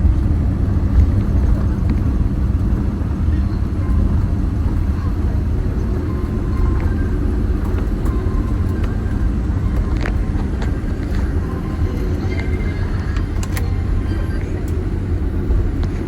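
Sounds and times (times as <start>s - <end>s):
aircraft cabin rumble: 0.0s - 16.0s.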